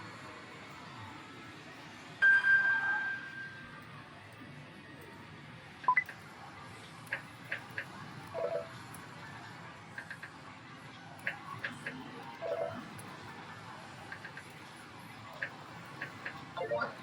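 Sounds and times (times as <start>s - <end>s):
slot machine beep: 12.4s - 12.8s, 16.6s - 17.0s.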